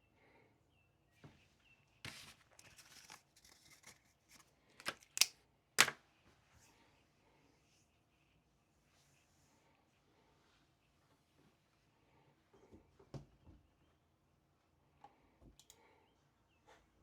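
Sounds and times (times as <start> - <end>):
rustling handling noise: 2.1 - 6.0.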